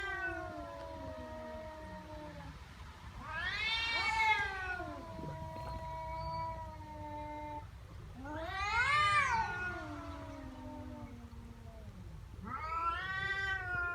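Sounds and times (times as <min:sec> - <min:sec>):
cat growling: 0:03.2 - 0:13.9
cat wailing: 0:03.2 - 0:13.9.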